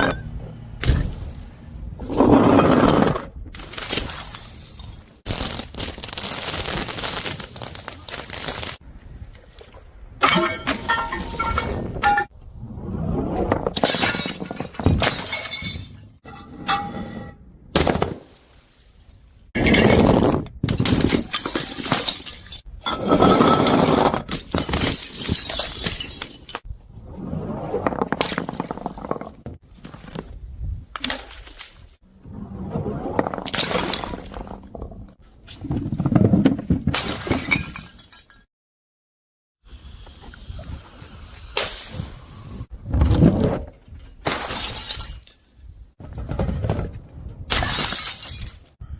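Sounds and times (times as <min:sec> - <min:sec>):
glass bottles shattering: 0:03.6 - 0:05.6, 0:10.2 - 0:12.3, 0:13.8 - 0:16.2, 0:20.8 - 0:26.6, 0:37.0 - 0:38.5, 0:44.2 - 0:45.5, 0:47.5 - 0:48.7.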